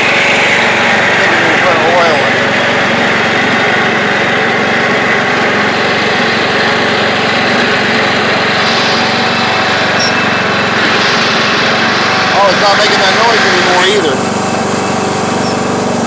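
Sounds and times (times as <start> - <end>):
lawn tractor engine running: 0.0 - 16.0.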